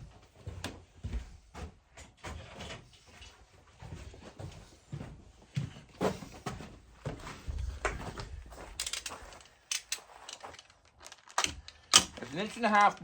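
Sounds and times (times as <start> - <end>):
tools knocking and clattering: 8.6 - 13.0.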